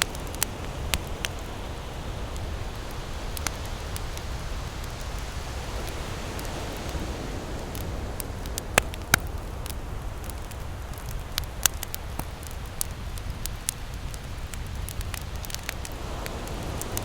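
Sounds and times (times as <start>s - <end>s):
ocean surf: 0.0s - 11.2s, 15.2s - 17.0s
burning wood popping: 0.0s - 17.0s
campfire crackling: 0.0s - 17.0s.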